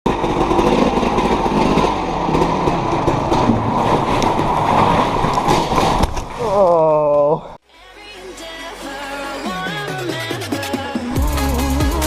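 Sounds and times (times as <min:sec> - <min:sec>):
off-road vehicle engine running: 0:00.0 - 0:05.3.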